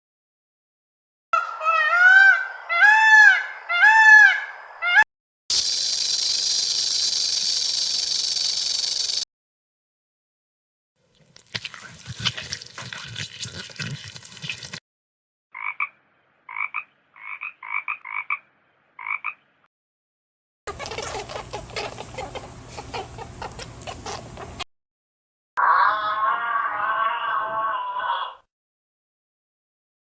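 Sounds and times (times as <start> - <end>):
short evenly pitched calls: 1.4 - 9.2, 20.7 - 24.6
rough noisy animal calls: 20.7 - 24.6, 25.6 - 28.4.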